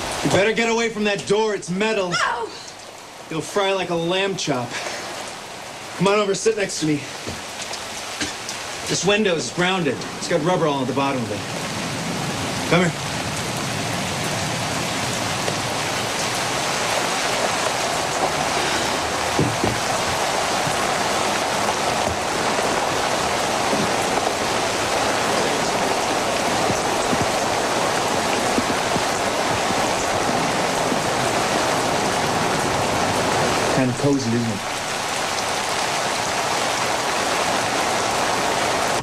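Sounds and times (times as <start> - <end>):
steady rain pouring: 0.0 - 39.0.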